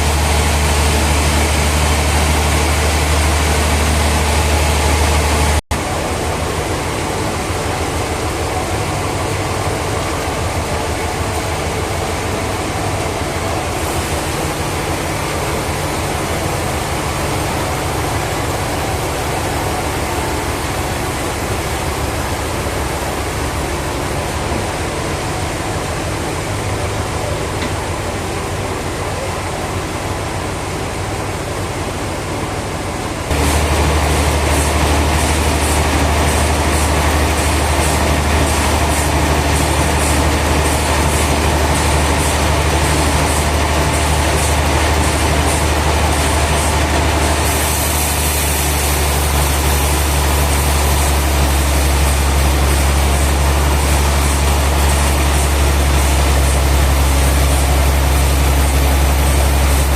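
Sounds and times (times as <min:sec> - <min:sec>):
sawmill machinery humming: 0:00.0 - 0:59.9.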